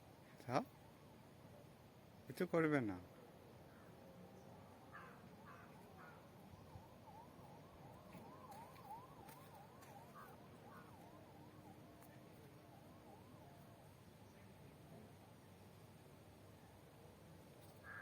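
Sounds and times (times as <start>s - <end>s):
crow cawing: 4.9s - 6.3s, 10.1s - 11.1s, 17.8s - 18.0s.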